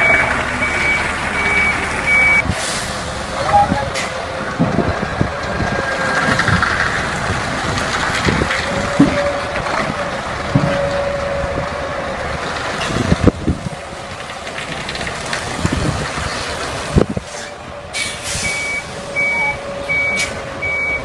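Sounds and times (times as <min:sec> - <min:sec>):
heavy vehicle engine under load: 0:00.0 - 0:21.0
knocks and clunks: 0:07.7 - 0:11.0.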